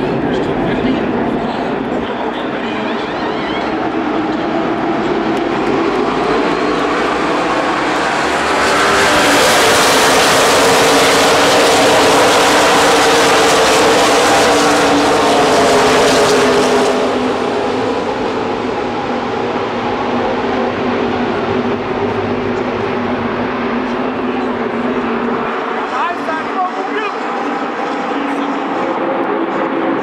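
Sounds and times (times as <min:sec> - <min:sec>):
race cars passing at speed: 0:00.0 - 0:30.0.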